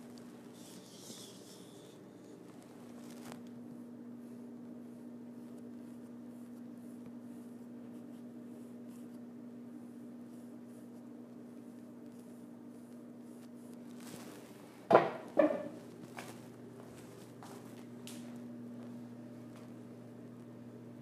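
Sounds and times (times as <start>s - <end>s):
paintbrush scratching on backdrop: 0.0s - 2.0s, 2.6s - 14.6s.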